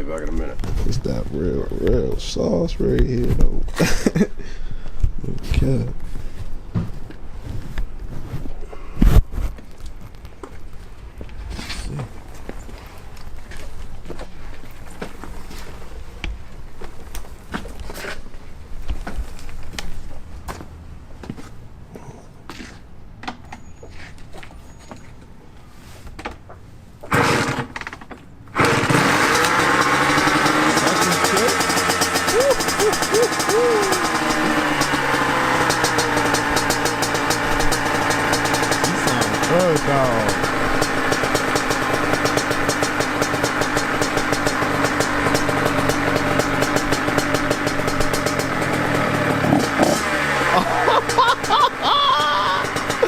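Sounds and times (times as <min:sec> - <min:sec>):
dirt bike engine starting: 0:27.0 - 0:53.0.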